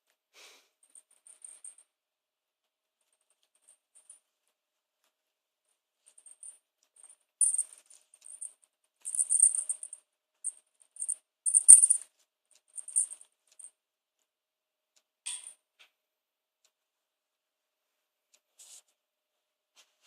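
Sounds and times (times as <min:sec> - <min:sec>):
cat toy jingling and rattling: 0:07.4 - 0:08.5, 0:09.1 - 0:09.9, 0:11.0 - 0:12.0, 0:12.8 - 0:13.2.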